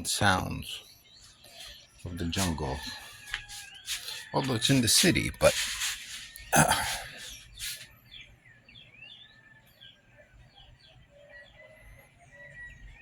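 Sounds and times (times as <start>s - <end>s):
birds chirping and whistling: 0.0s - 13.0s
low held bird calls: 0.0s - 13.0s.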